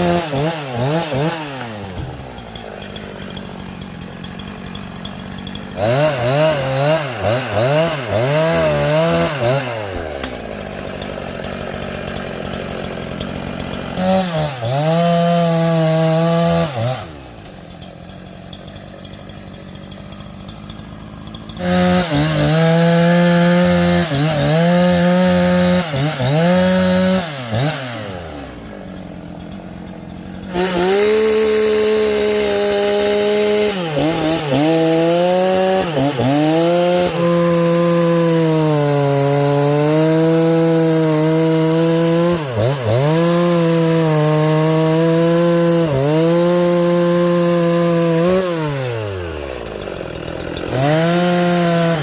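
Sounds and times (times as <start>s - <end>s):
chainsaw engine revving: 0.0s - 52.0s.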